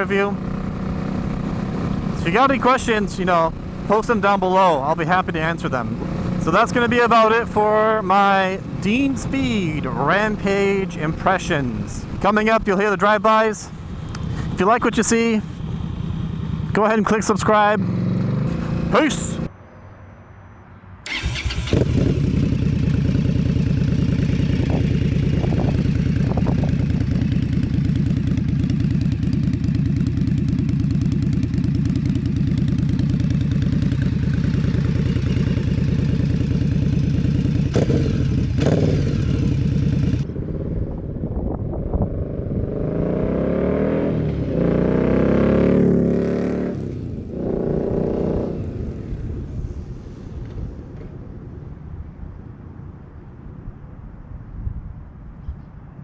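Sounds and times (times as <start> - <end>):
motorcycle engine revving: 0.0 - 2.6, 15.5 - 16.8, 17.7 - 19.5, 21.0 - 40.6, 41.9 - 49.2.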